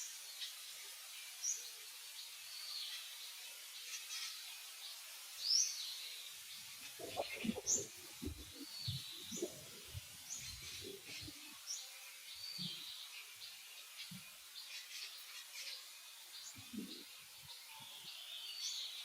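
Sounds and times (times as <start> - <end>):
birds chirping: 5.5 - 19.0.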